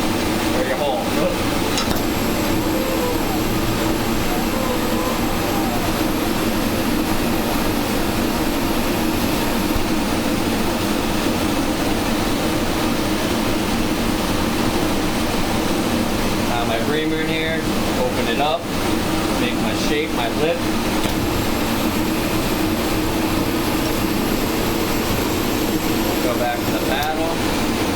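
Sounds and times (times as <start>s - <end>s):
torch flame roaring: 0.0s - 27.9s.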